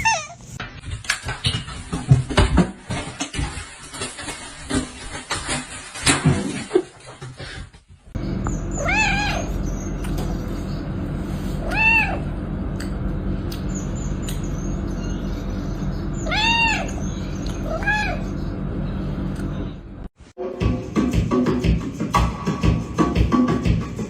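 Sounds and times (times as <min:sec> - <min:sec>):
cat meowing: 0:00.0 - 0:00.4, 0:08.7 - 0:09.6, 0:11.6 - 0:12.3, 0:16.2 - 0:17.0, 0:17.6 - 0:18.3
steady low hum: 0:08.2 - 0:20.1.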